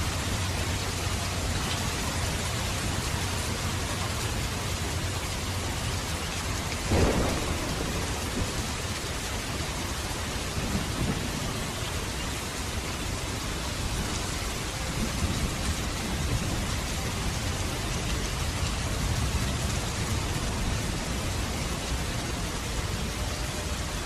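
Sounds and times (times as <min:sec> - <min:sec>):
rain falling: 0:00.0 - 0:24.0
distant thunder rumble: 0:06.8 - 0:23.0.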